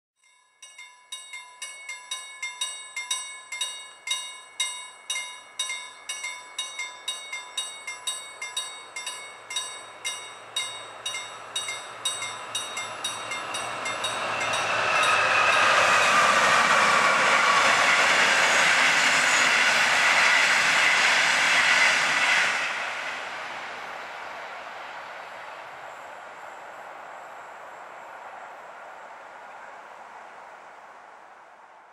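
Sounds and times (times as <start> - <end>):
level crossing bell ringing: 0.2 - 15.2
train wheel and rail noise: 0.6 - 31.9.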